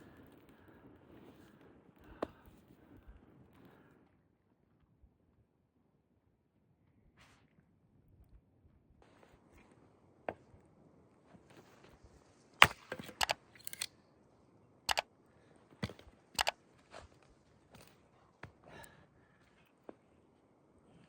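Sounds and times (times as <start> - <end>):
sharp knocks and cracks: 12.6 - 13.9.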